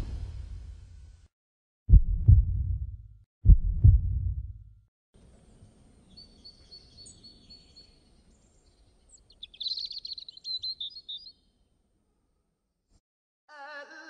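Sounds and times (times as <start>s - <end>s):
birds singing: 6.0s - 11.6s.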